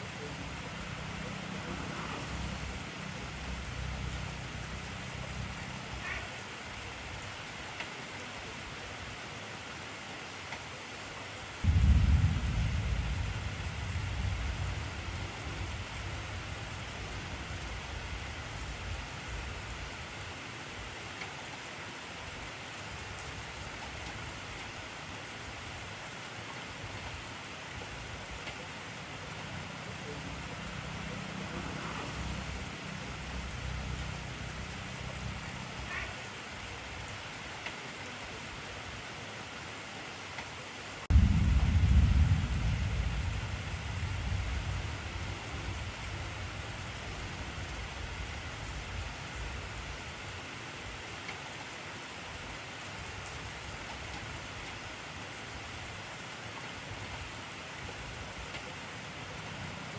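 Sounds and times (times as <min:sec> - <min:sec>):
heavy rain falling: 0:00.0 - 0:59.9
thunder rumbling: 0:11.6 - 0:19.8, 0:41.1 - 0:49.8.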